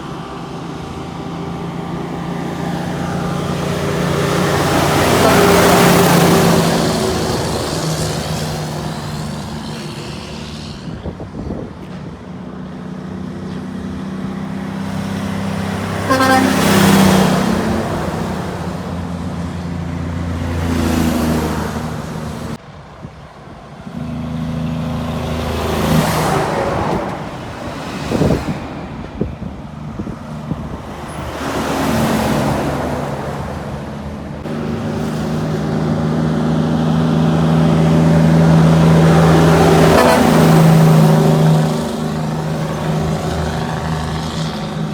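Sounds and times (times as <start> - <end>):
highway traffic passing: 0.0 - 44.9
vehicle horn toot: 4.9 - 6.2, 16.0 - 17.4.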